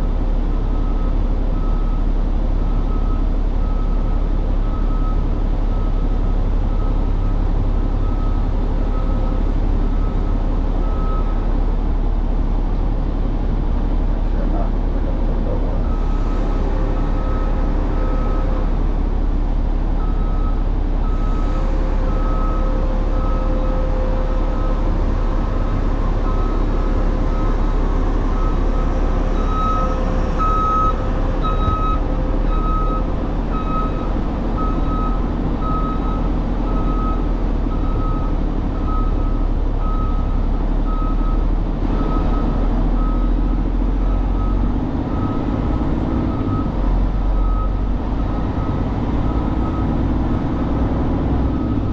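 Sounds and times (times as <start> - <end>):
truck engine rumbling: 0.0 - 51.9
reversing alarm beeping: 2.6 - 11.4, 15.9 - 19.4, 20.0 - 41.4.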